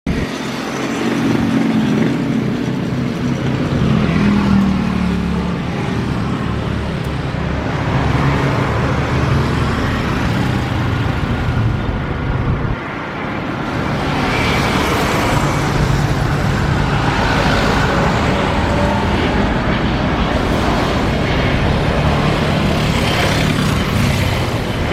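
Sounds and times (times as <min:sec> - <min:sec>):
jet engines roaring: 0:00.1 - 0:24.9.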